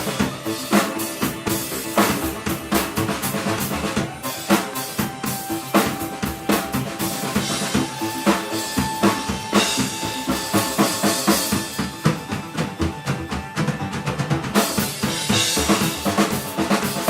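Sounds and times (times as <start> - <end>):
bass drum and snare beat: 0.0 - 17.0
live band playing: 0.0 - 17.0.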